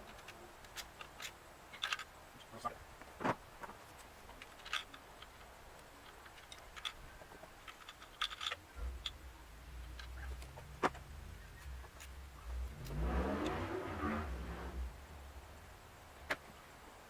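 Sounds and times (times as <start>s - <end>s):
tools clicking on engine parts: 0.0s - 16.6s
low steady rumble: 8.7s - 17.0s.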